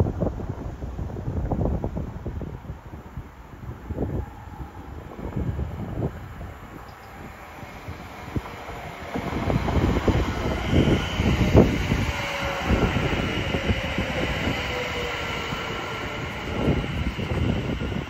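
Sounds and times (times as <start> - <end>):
high whine: 3.9 - 18.0.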